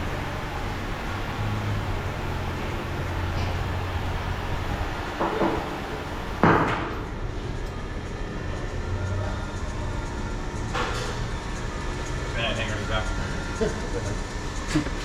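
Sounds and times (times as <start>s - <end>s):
steady low hum: 0.0s - 15.0s
sharp knocks: 5.2s - 5.8s.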